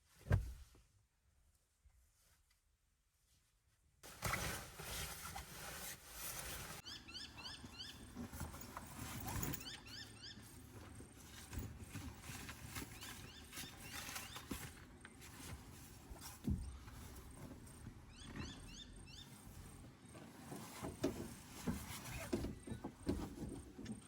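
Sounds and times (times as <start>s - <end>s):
bird chirping: 6.8s - 8.3s, 9.4s - 10.6s, 18.0s - 19.5s.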